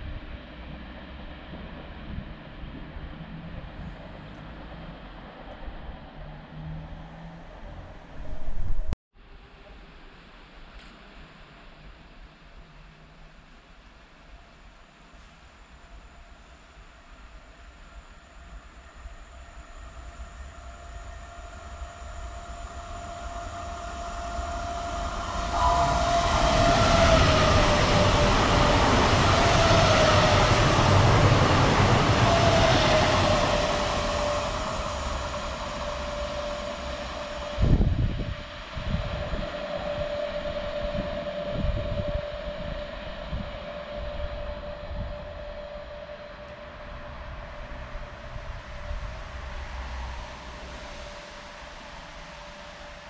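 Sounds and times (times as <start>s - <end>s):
train passing with rush of wheels: 0.0s - 9.0s, 14.2s - 53.0s
high whine sliding down in pitch: 16.8s - 53.0s.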